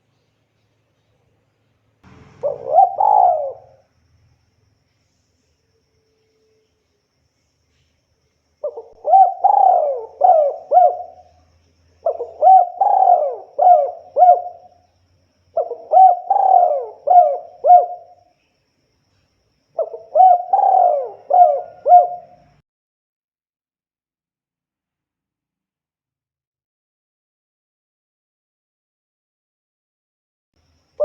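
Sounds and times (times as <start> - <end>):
dove cooing: 2.2 - 3.8, 8.6 - 11.4, 12.0 - 14.8, 15.5 - 18.2, 19.8 - 22.6.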